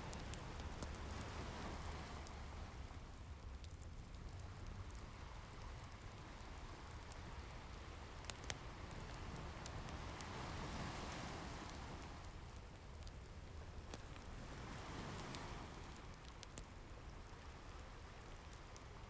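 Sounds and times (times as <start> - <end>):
wood fire crackling: 0.0 - 19.0
ocean waves washing in: 9.8 - 12.2.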